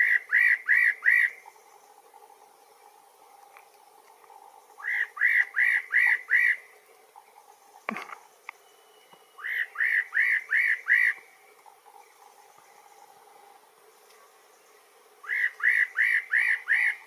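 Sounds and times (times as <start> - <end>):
bird whistling song: 4.8 - 6.6, 8.5 - 11.3, 15.2 - 17.0.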